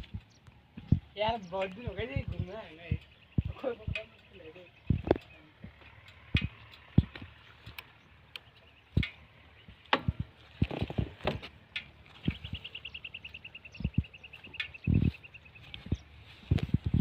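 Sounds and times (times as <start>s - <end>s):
bird trilling: 11.9s - 16.1s.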